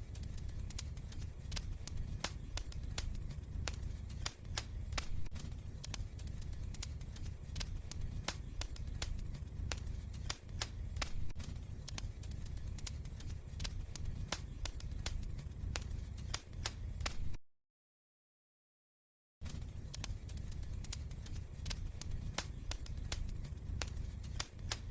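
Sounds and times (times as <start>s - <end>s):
fire crackling and popping: 0.0s - 17.4s, 19.4s - 24.9s
fire low rumble: 0.0s - 17.4s, 19.4s - 24.9s.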